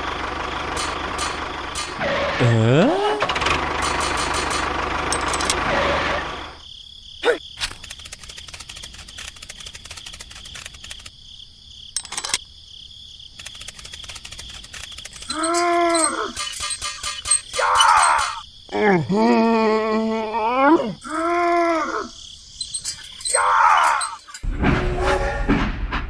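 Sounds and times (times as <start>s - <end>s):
small engine running: 0.0s - 6.6s, 7.8s - 11.1s, 13.4s - 17.2s.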